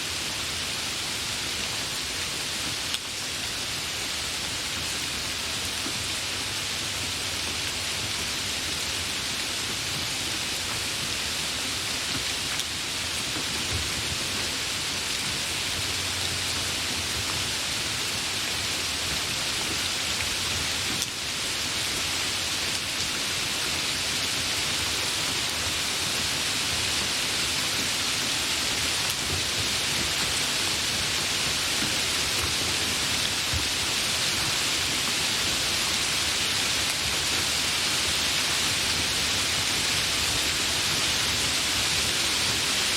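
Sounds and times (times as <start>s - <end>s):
heavy rain: 0.0s - 42.9s.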